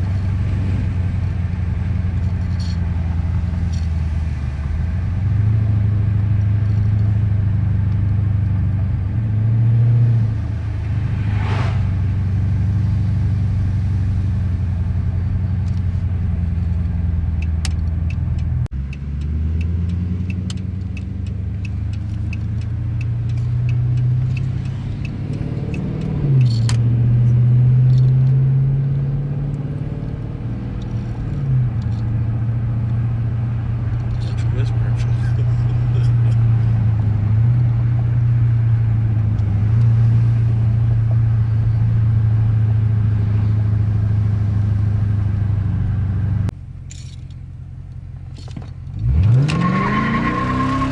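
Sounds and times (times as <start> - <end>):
car engine droning while driving: 0.0 - 50.9
light regular ticking: 15.6 - 26.9.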